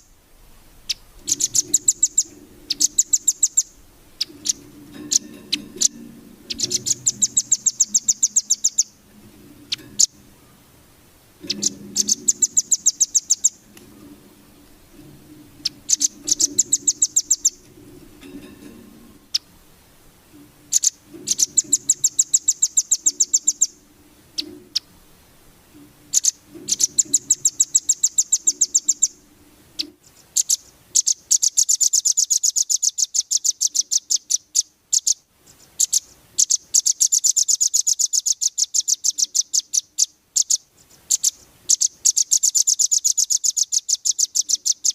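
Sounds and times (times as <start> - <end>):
songbird singing rapid trills: 0.9 - 10.3, 11.4 - 13.7, 15.6 - 17.7, 20.7 - 23.8, 26.1 - 29.2, 29.8 - 44.9.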